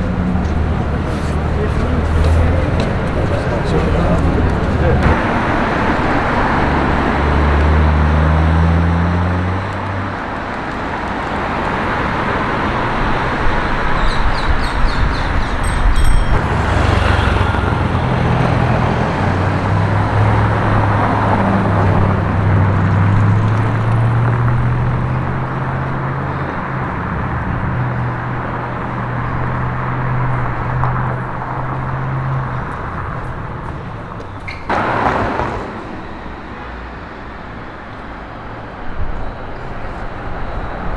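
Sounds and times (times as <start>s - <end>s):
vehicles going by: 0.0s - 40.9s
short high squeaks: 34.2s - 34.7s.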